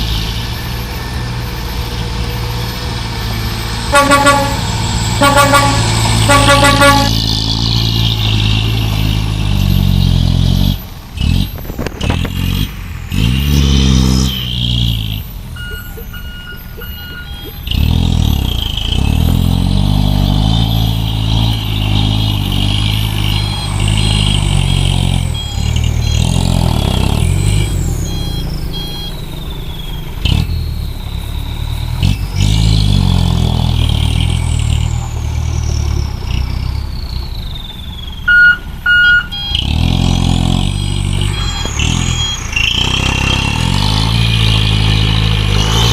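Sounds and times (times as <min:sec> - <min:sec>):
truck engine revving: 0:00.0 - 0:45.9
horn honking: 0:03.8 - 0:07.5, 0:13.6 - 0:29.2, 0:38.3 - 0:44.8.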